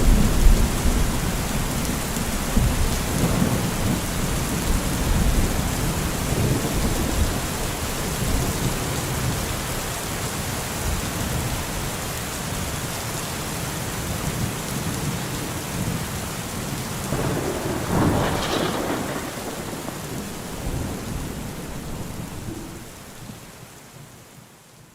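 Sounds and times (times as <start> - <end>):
rumbling thunder: 0.0 - 9.8, 17.1 - 23.4
heavy rain: 0.0 - 24.8.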